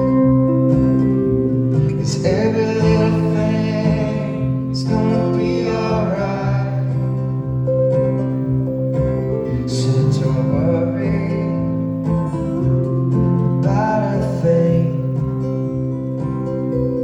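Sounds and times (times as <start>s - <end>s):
strummed acoustic guitar: 0.0s - 17.0s
man singing: 1.9s - 7.4s, 9.4s - 12.0s, 13.6s - 16.0s.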